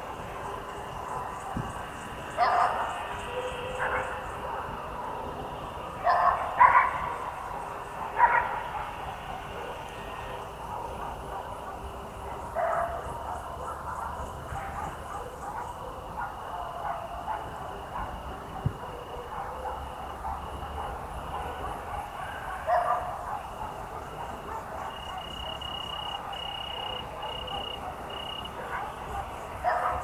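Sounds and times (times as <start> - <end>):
distant dog barking: 0.3 - 30.0
insect trill: 24.9 - 29.6.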